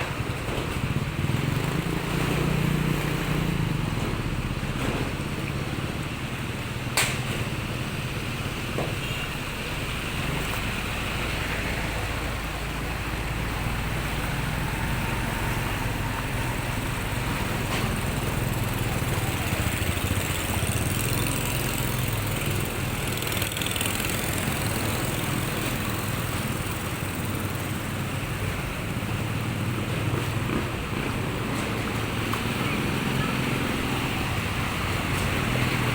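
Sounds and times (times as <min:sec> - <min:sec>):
vehicle engine running: 0:09.6 - 0:35.9.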